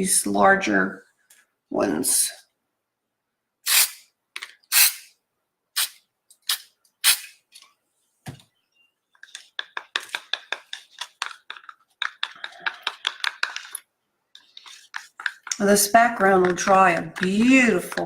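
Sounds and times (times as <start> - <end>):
paint stirred in a cup tapping: 9.2 - 18.0.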